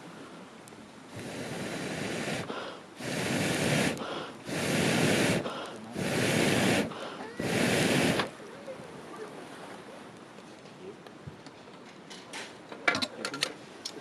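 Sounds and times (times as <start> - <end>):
bursts of rushing air: 1.1 - 8.4.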